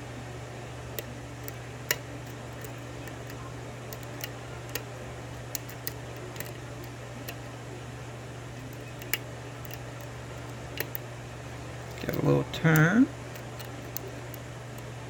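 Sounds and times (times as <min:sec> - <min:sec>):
lock pick clicking in lock: 0:05.5 - 0:06.6, 0:08.6 - 0:11.0, 0:11.9 - 0:14.9.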